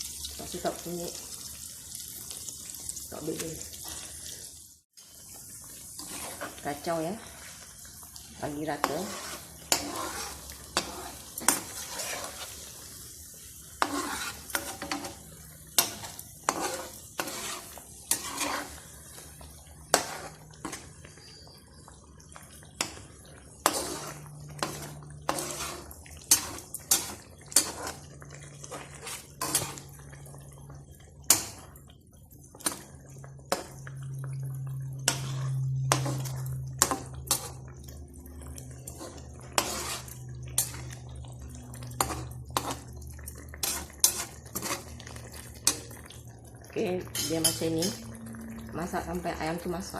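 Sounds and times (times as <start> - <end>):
light sizzle: 0.0 - 49.9
utensil scraping a pot: 6.0 - 7.4, 8.4 - 12.8, 13.7 - 21.8, 22.8 - 30.2, 34.6 - 46.1.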